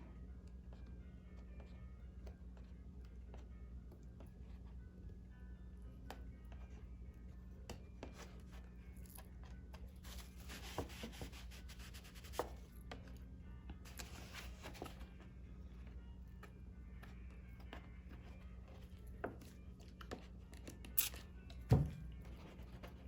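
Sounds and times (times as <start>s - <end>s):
scratching and rubbing parchment: 10.0s - 12.6s.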